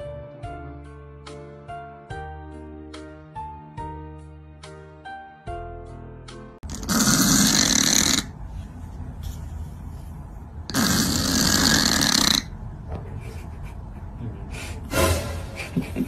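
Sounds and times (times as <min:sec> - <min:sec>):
loud snoring: 0:06.7 - 0:08.4, 0:10.7 - 0:12.6.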